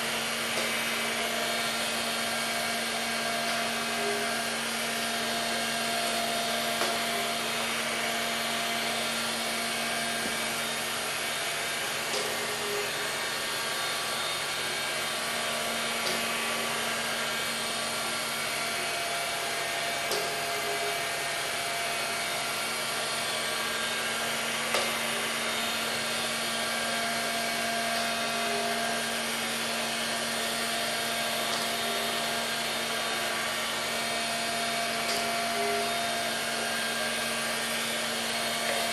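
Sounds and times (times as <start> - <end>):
robotic vacuum cleaner whirring: 0.0 - 38.9.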